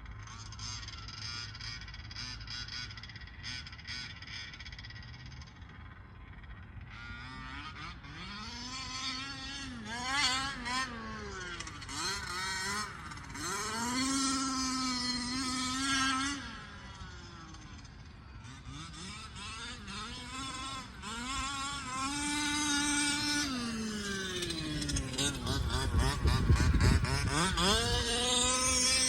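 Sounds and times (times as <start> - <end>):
electric motor whining: 19.3 - 29.0.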